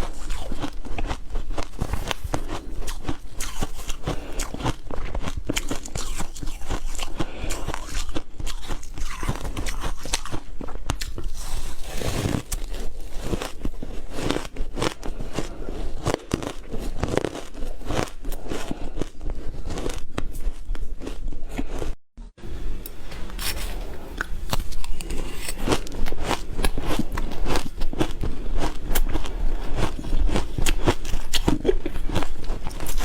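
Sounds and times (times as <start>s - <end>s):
ice being chewed: 0.0s - 21.9s, 23.3s - 33.0s.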